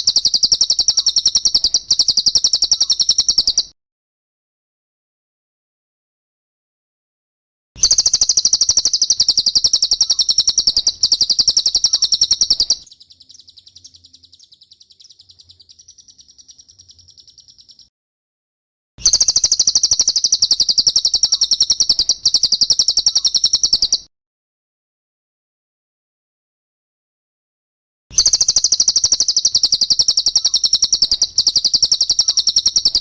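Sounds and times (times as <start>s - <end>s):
bird chattering trill: 0.0s - 3.7s, 7.8s - 17.9s, 19.0s - 24.1s, 28.2s - 33.0s.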